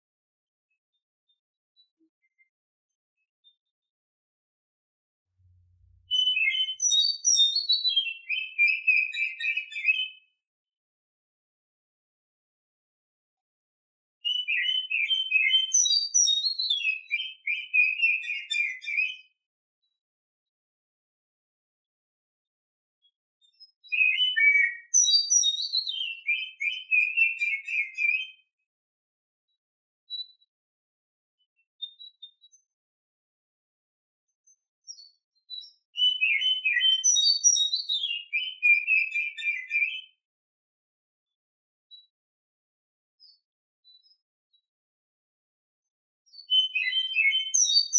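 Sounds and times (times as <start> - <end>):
bird singing chirps and whistles: 5.9 - 10.3, 14.2 - 19.4, 23.4 - 28.5, 34.8 - 40.2, 46.3 - 47.9.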